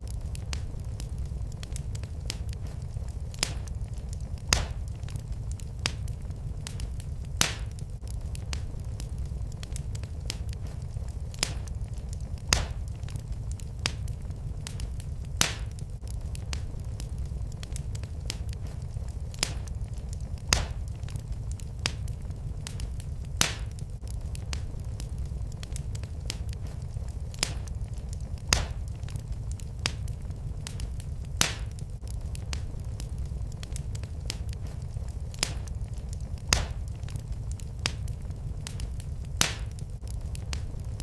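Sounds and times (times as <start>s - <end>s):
fire crackling and popping: 0.0s - 41.0s
low rumble of flames: 0.0s - 41.0s.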